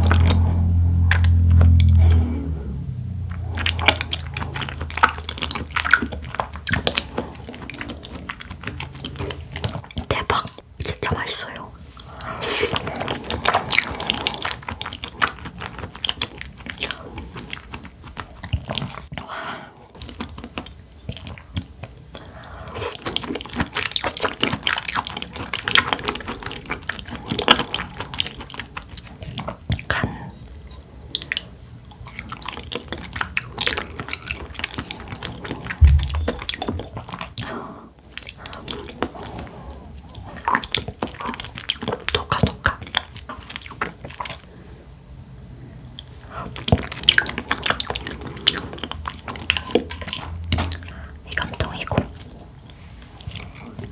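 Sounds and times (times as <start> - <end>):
wet chewing mouth clicks: 3.3 - 19.3, 19.9 - 37.5, 45.8 - 53.9
dull low thump: 35.8 - 36.9.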